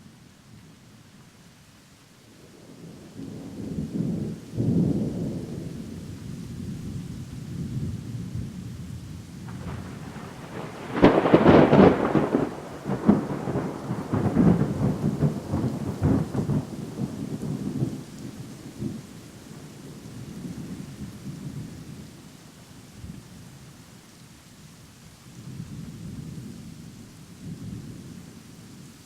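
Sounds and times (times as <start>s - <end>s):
crackling thunderclap: 2.6s - 22.0s
thunder rumbling: 2.8s - 22.0s.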